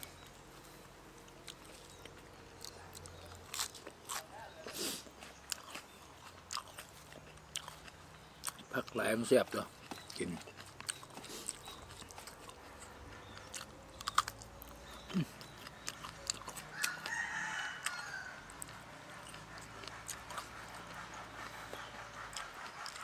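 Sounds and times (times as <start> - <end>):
person chewing: 0.0 - 23.0
rooster crowing: 16.6 - 19.4.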